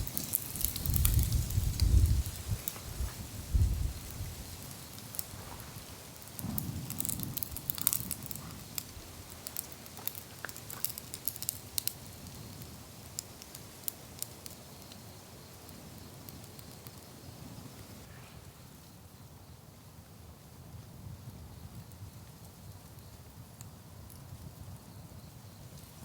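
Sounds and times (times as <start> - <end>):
wood fire crackling: 0.0 - 19.0, 20.0 - 26.0.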